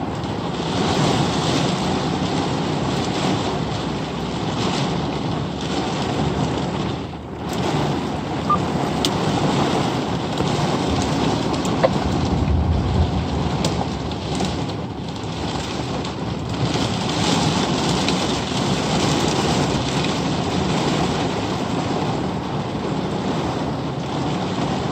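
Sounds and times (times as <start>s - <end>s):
heavy rain falling: 0.0s - 24.9s
low rumble: 8.4s - 16.9s.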